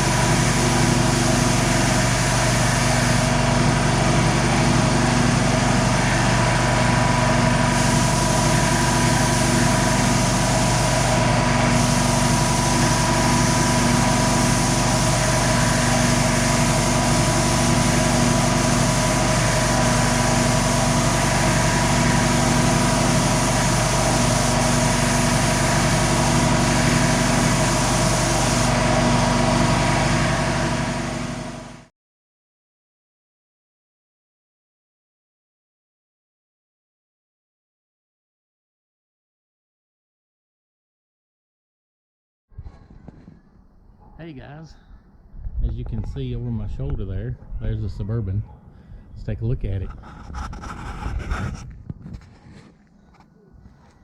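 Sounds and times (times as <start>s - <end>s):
machine humming: 0.0s - 31.9s.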